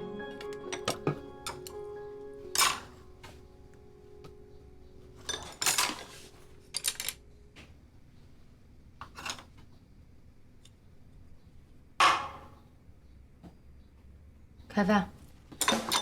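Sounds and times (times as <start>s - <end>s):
tableware clattering: 2.6s - 3.0s, 5.2s - 7.2s, 12.0s - 12.6s, 15.6s - 16.0s.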